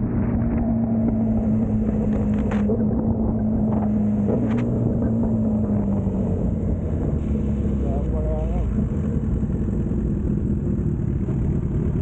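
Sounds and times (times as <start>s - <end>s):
wind noise on microphone: 0.0s - 7.8s
motorcycle engine running: 0.0s - 12.0s.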